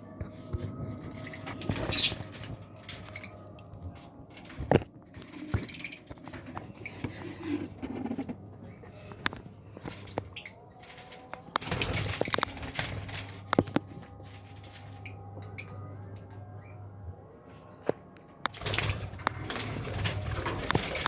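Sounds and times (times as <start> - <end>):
birds squeaky chirps: 1.0 - 3.5, 15.0 - 16.8, 20.6 - 21.0.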